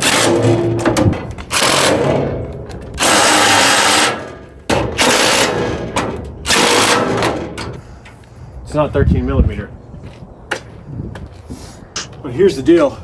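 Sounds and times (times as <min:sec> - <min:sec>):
cordless drill driving bolts: 0:00.0 - 0:07.8.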